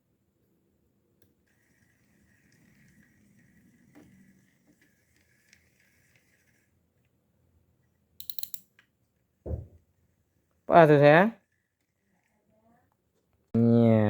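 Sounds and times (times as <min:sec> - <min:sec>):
fishing reel clicks: 0:08.2 - 0:08.7.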